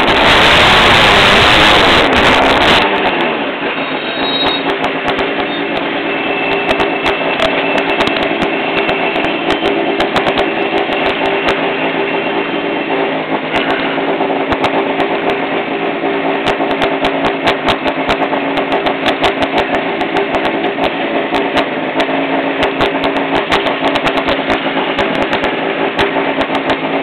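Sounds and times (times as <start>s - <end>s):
car engine idling: 0.0s - 27.0s
sharp pops or clicks: 4.6s - 5.9s, 16.4s - 26.9s.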